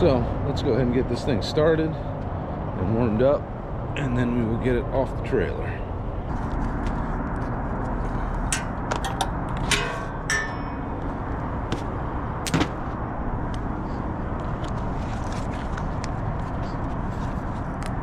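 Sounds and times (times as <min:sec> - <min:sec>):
metallic clanks and clicks: 0:08.5 - 0:11.0.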